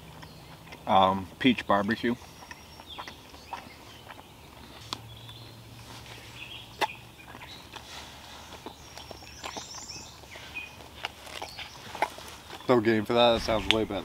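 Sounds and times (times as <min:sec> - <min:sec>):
faint birds calling: 0:00.0 - 0:14.0.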